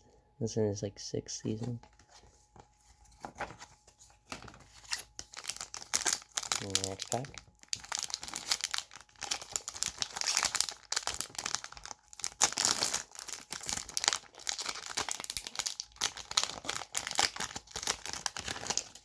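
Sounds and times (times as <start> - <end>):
foil wrapper tearing and crinkling: 4.3 - 19.0.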